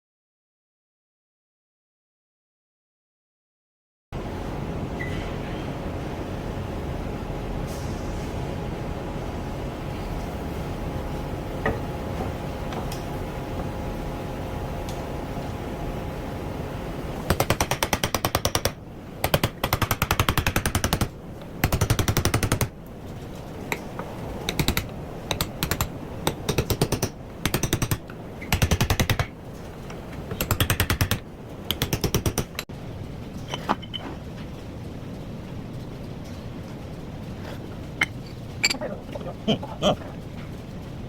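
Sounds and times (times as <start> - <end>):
power tool hammering rapidly: 17.3 - 22.7.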